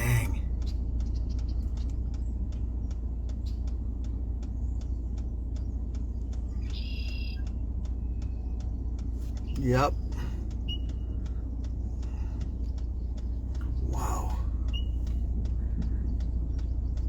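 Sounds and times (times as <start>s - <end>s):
faint regular ticking: 0.0s - 17.0s
vehicle idling: 0.0s - 17.0s.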